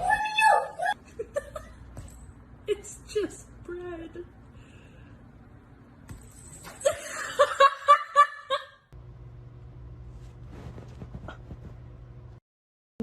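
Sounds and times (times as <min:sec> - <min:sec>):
steady low hum: 0:00.9 - 0:07.6, 0:08.9 - 0:12.4.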